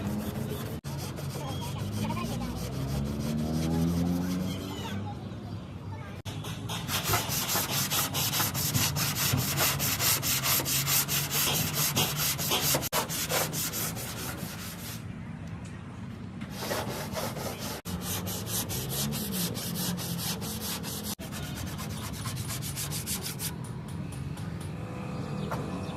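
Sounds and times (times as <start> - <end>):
hand sanding strokes: 0.0 - 4.6, 6.7 - 15.0, 16.5 - 23.5.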